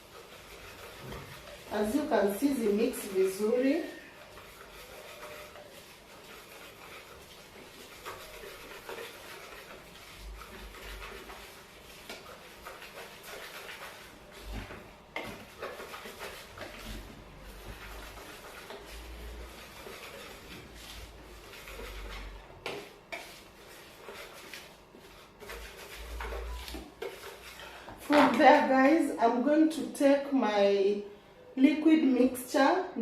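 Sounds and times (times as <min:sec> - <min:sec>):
dry ingredients stirred in bowl: 0:00.0 - 0:30.2.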